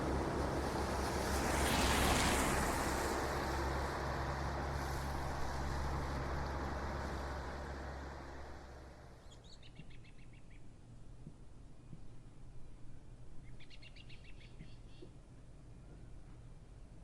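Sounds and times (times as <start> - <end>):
vehicle passing: 0.0 - 9.3.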